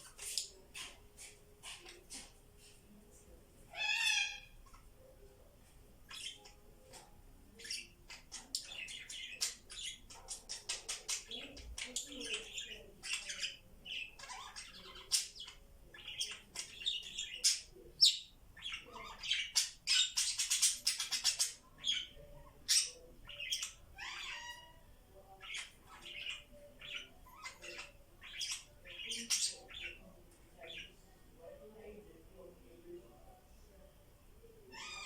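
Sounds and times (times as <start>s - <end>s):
budgies chirping and squawking: 0.0s - 2.4s, 6.1s - 30.9s, 34.7s - 35.0s.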